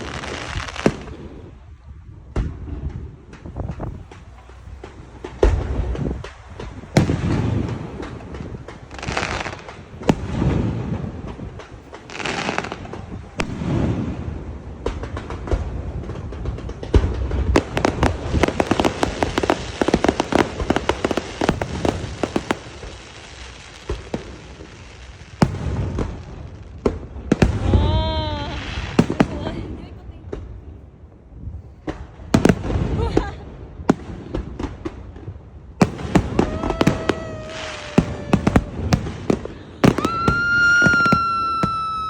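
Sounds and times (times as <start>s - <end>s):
fireworks hissing rushes: 0.0s - 1.6s, 3.4s - 14.4s, 16.6s - 30.0s, 35.8s - 42.0s
fireworks bangs and crackles: 0.0s - 42.0s.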